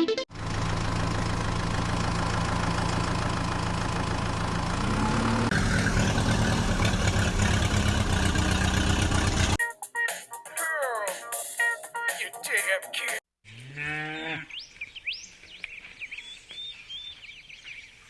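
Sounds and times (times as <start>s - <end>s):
heavy vehicle engine idling: 0.3s - 9.6s.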